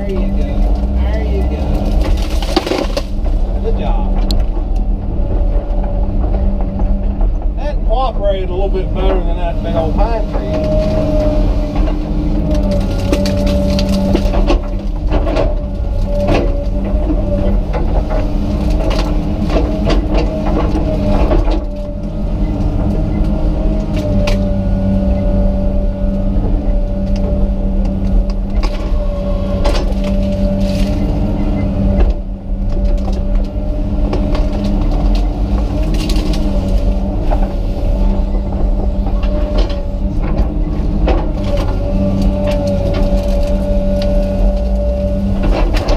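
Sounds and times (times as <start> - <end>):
excavator diesel engine running: 0.0 - 45.9
wood cracking and crunching: 0.0 - 45.9.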